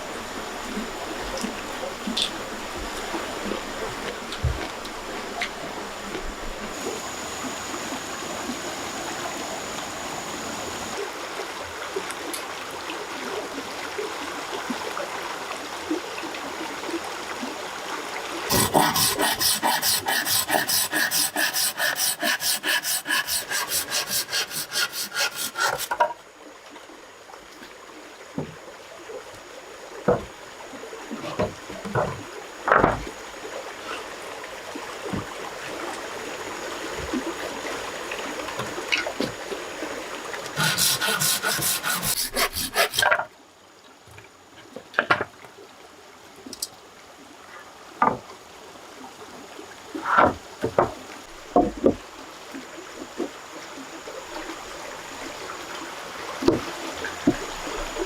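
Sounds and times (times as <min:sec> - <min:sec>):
hand saw cutting wood: 0:06.5 - 0:11.0, 0:18.5 - 0:26.1, 0:40.5 - 0:43.2.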